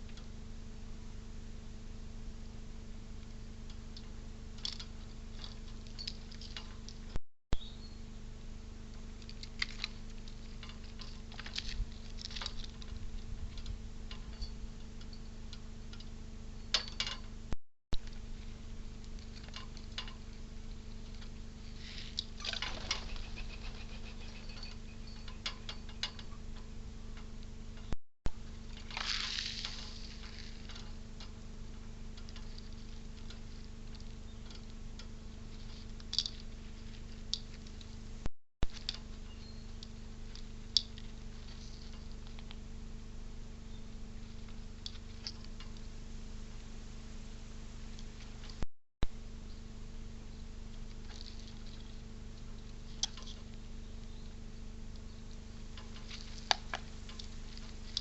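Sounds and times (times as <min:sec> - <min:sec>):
low electrical hum: 0:00.0 - 0:58.0
squirrel scrabbling and clicking: 0:08.9 - 0:16.2, 0:28.6 - 0:38.1, 0:54.9 - 0:58.0.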